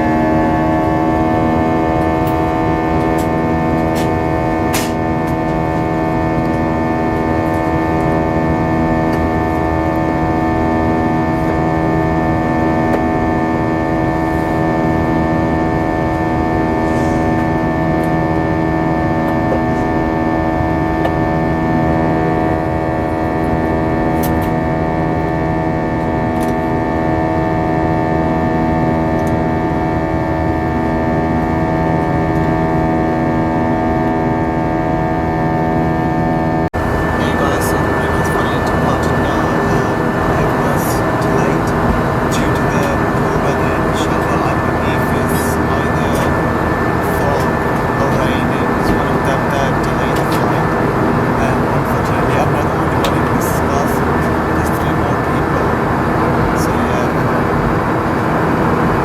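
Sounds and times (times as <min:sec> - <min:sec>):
jet engines droning in cabin: 0:00.0 - 0:59.0.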